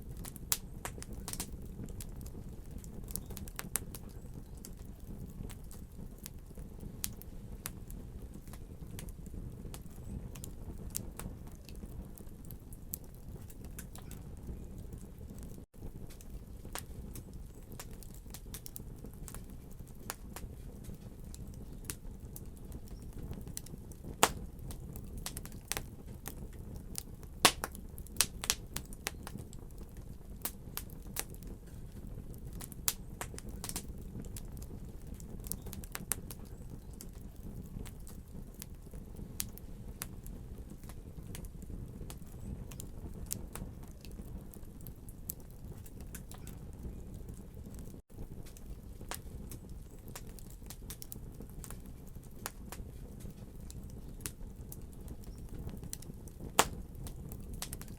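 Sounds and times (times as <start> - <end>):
fire crackling in fireplace: 0.0 - 57.9.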